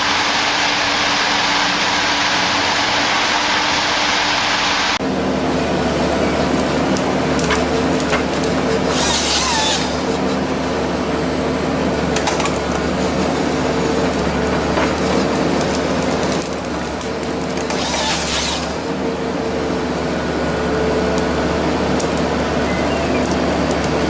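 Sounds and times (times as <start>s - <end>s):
heavy machine engine running: 0.0s - 24.0s
loud crackling bursts: 6.4s - 10.3s, 12.2s - 18.9s.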